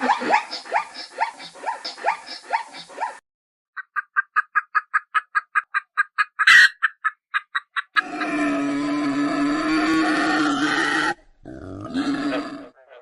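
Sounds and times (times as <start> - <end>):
harsh animal call: 8.0 - 13.0.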